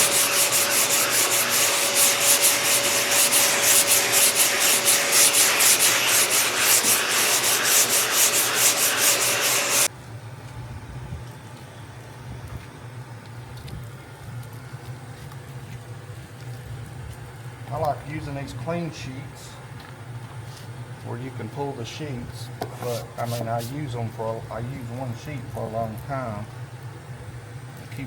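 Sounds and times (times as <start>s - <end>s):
sandpaper rasping on metal: 0.0s - 9.9s, 22.8s - 23.8s.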